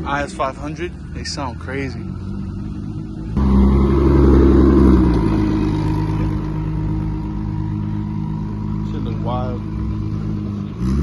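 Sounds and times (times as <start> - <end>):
car engine revving: 1.2 - 11.0.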